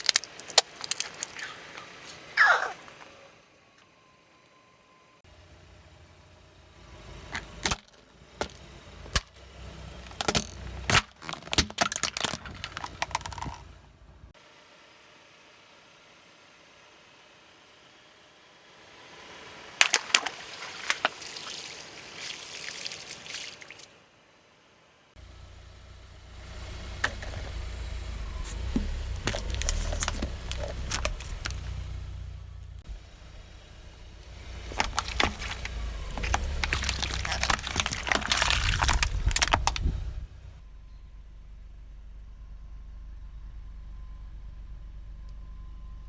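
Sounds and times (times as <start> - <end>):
car tyres crushing brittle objects: 0.0 - 2.4, 7.0 - 13.8, 19.5 - 23.8, 26.5 - 40.6
low engine rumble: 5.2 - 14.4, 24.3 - 46.0.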